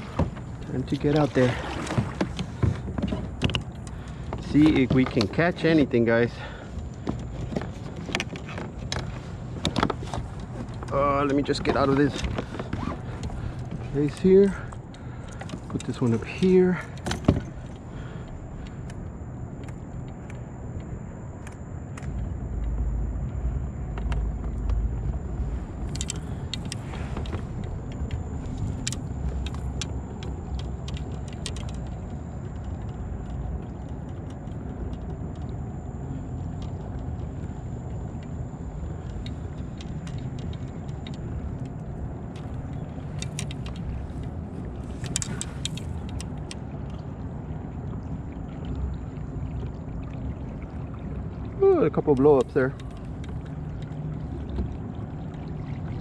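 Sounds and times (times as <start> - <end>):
rushing water: 0.0 - 56.0.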